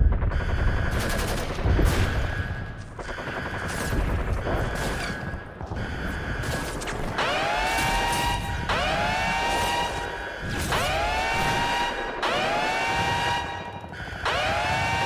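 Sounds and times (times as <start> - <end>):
automatic gunfire: 0.9 - 5.4
siren rising in pitch: 7.2 - 15.0.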